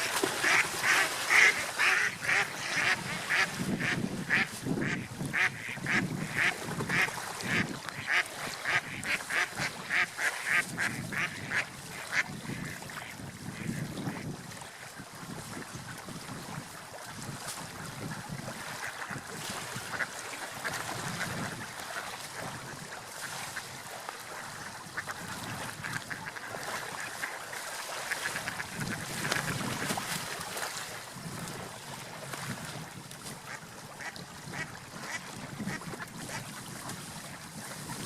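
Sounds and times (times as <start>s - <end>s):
ducks splashing and dabbling: 0.0s - 38.0s
duck calls: 0.4s - 12.8s.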